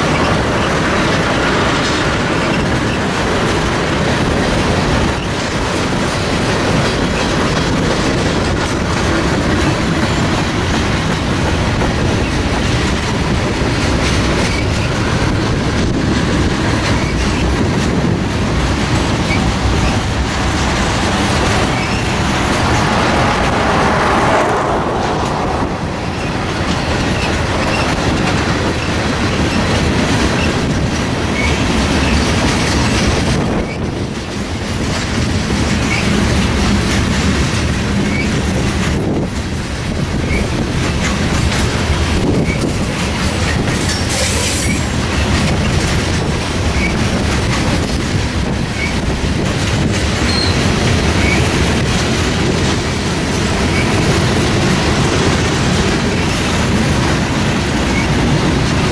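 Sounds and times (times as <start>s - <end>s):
freight train wheels rumbling on rail: 0.0s - 58.9s.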